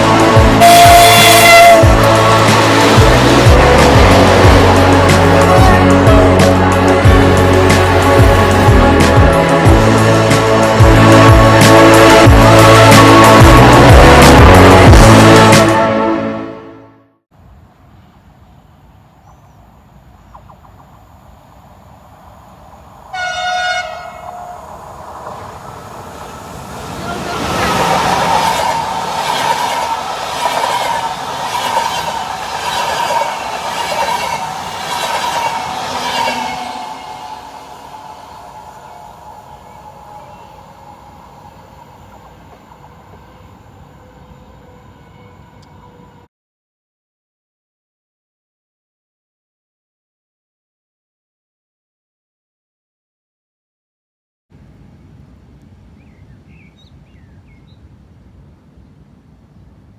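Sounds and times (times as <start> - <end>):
approaching train rumble: 0.0 - 16.0, 17.4 - 46.3
locomotive horn blast: 0.0 - 17.2, 23.1 - 24.8, 26.7 - 31.3, 34.1 - 46.3.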